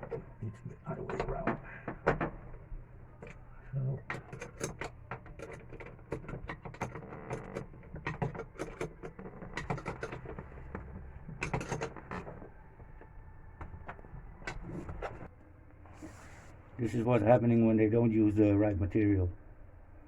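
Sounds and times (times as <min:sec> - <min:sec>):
small hard parts clicking and rattling: 0:00.0 - 0:15.3.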